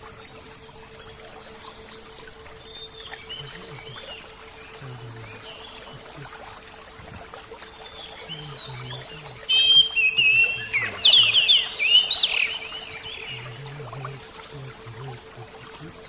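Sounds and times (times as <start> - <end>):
faint steady hiss: 0.0 - 16.0
bird singing whistles: 8.3 - 13.6.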